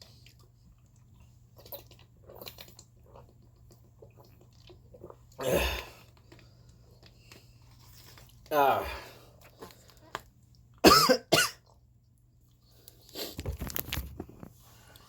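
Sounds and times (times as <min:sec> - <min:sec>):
person sipping and swallowing water: 0:00.0 - 0:10.3
person coughing: 0:10.8 - 0:11.6.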